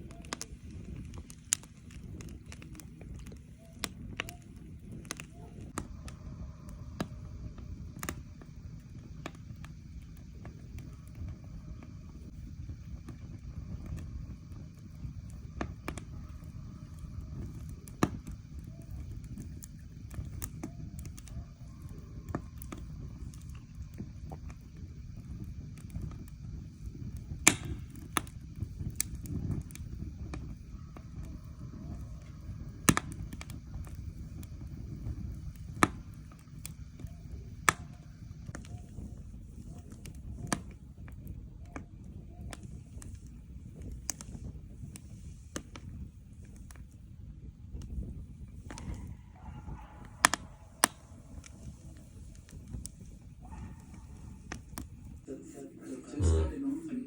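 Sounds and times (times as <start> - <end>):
wood fire crackling and popping: 0.0 - 55.4.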